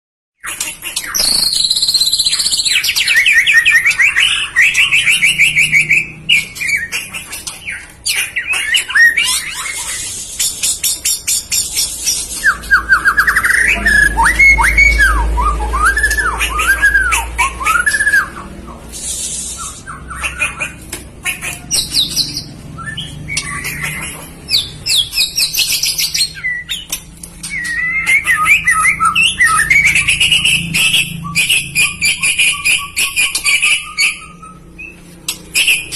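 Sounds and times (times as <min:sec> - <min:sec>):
bird singing trills and chatter: 0:00.4 - 0:35.9
bird whistles rising and falling: 0:01.0 - 0:06.9, 0:08.8 - 0:20.2, 0:24.5 - 0:35.9.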